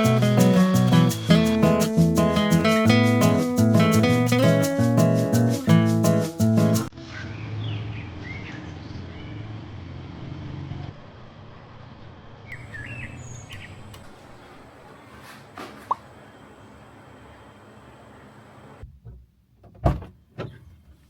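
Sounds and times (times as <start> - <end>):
acoustic guitar music: 0.0 - 6.9
birds chirping: 12.5 - 18.8.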